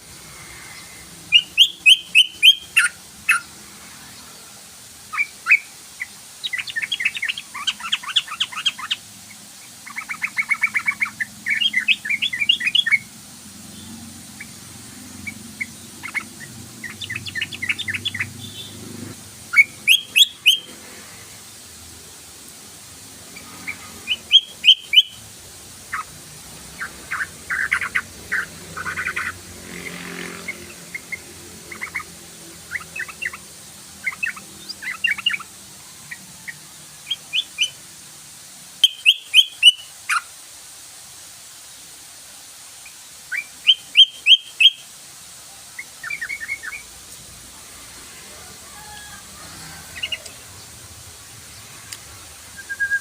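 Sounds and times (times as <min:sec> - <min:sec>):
soft bird chattering: 0:05.1 - 0:13.1, 0:26.7 - 0:35.5.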